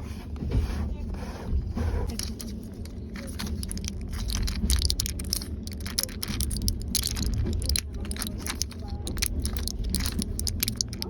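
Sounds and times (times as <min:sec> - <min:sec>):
moving train rumbling: 0:00.0 - 0:11.0
tapping and clicking of small objects: 0:02.1 - 0:11.0.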